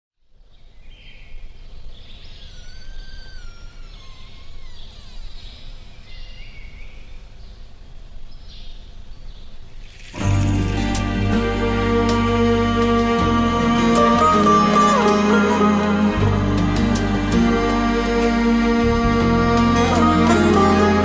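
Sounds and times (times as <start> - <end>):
high gliding chirps: 2.2 - 6.7
loud music: 10.2 - 21.0.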